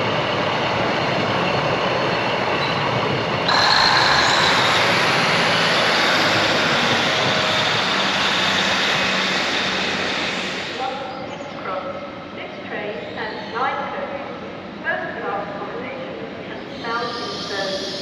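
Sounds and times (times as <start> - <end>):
train rumbling: 0.0 - 13.2
high whines: 3.5 - 10.8.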